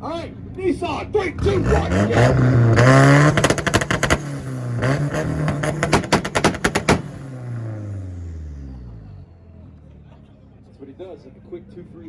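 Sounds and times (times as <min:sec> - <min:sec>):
car engine revving: 0:01.2 - 0:09.3
exhaust pops and bangs: 0:01.8 - 0:07.8.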